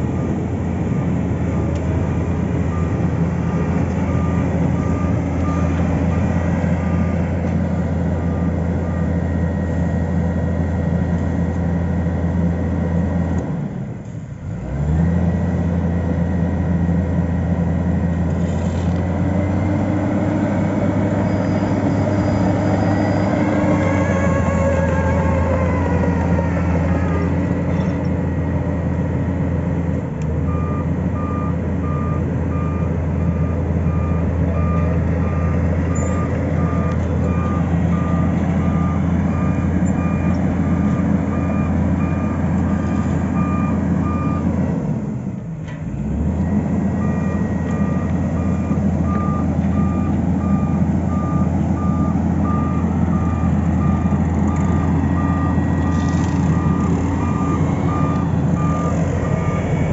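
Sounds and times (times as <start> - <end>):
reversing alarm beeping: 0.0 - 10.7, 19.4 - 28.0, 30.4 - 44.6, 46.4 - 59.9
low engine drone: 0.0 - 59.9.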